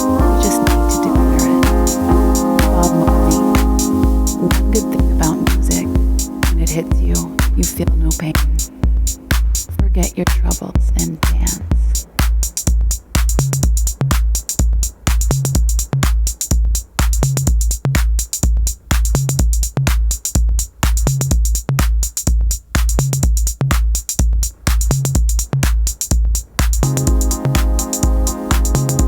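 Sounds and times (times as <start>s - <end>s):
sustained synth chord: 0.0s - 8.0s, 26.8s - 29.0s
drum machine beat: 0.0s - 29.0s.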